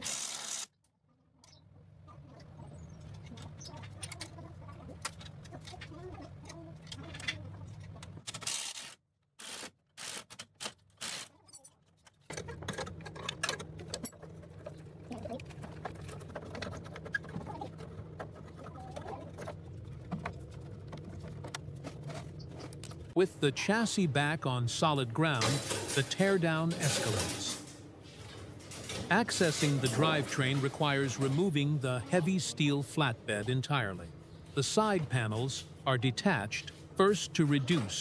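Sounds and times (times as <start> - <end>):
steady low hum: 13.4 - 38.0.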